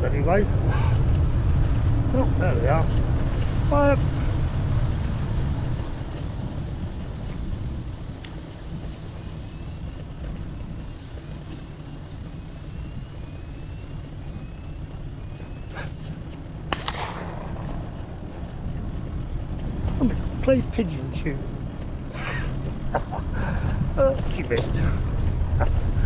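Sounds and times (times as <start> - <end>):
road rumble: 0.0 - 26.0
wind: 0.0 - 26.0
distant shotgun shots: 16.7 - 17.4.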